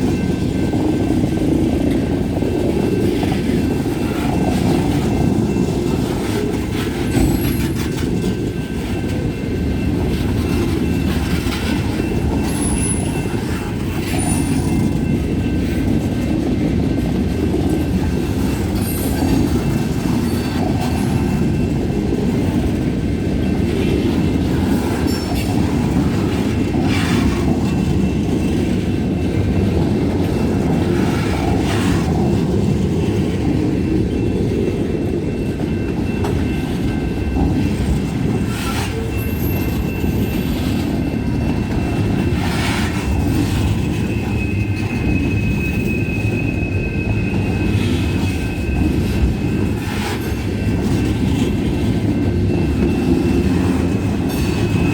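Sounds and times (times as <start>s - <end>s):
freight train rumbling: 0.0s - 54.9s
train clacks: 0.0s - 54.9s
high wheel squeal: 10.2s - 15.8s, 23.7s - 29.3s, 35.2s - 54.9s.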